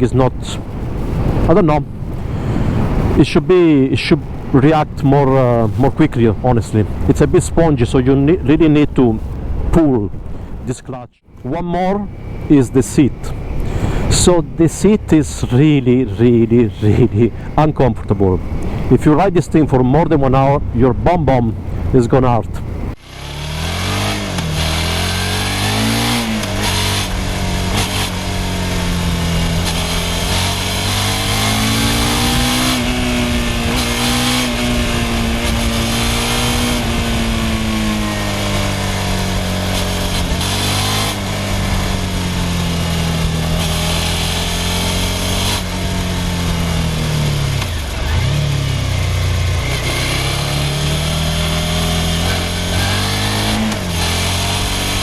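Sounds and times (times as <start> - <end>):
wind rush: 0.0 - 10.7, 11.9 - 23.0, 23.8 - 44.2
motorcycle engine running: 22.6 - 55.0.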